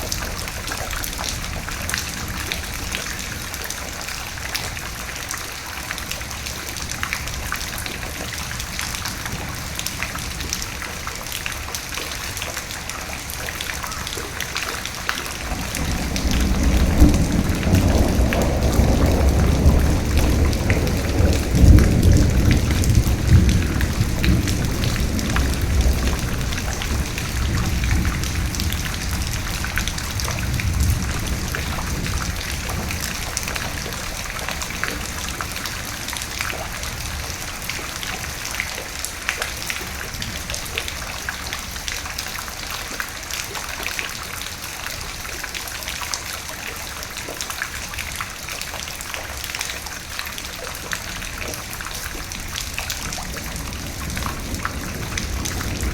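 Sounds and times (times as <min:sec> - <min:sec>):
raindrops pattering: 0:00.0 - 0:55.9
rolling thunder rumble: 0:15.2 - 0:38.4, 0:51.2 - 0:55.9.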